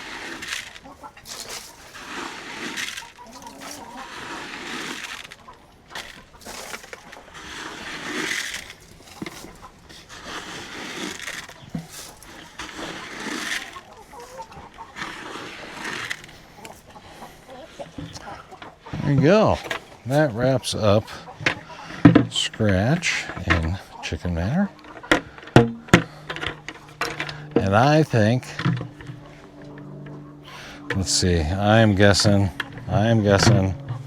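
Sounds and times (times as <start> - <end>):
grain rustling: 0.0 - 17.0, 18.9 - 28.9
hens clucking: 0.0 - 34.0.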